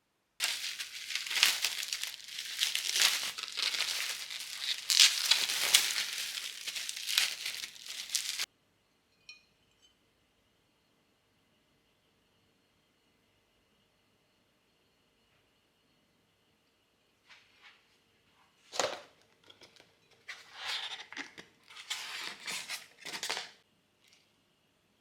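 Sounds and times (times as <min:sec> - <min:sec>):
crinkly packaging rustling: 0:00.4 - 0:08.5, 0:20.7 - 0:23.6.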